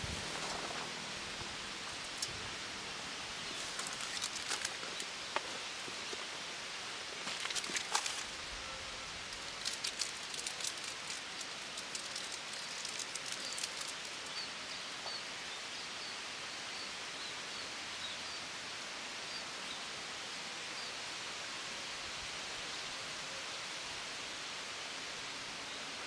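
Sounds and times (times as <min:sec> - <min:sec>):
dry rustling crackles: 0:00.0 - 0:14.8
outdoor hiss: 0:00.0 - 0:26.0.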